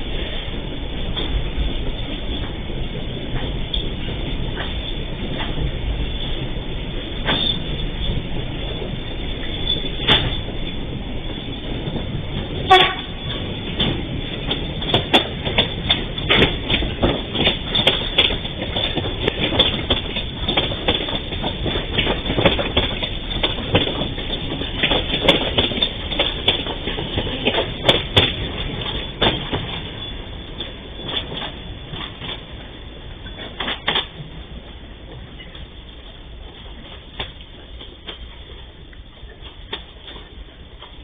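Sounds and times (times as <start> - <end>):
train rumble: 0.0 - 41.0
train wheels clacking: 0.0 - 41.0
train horn toot: 12.6 - 13.2.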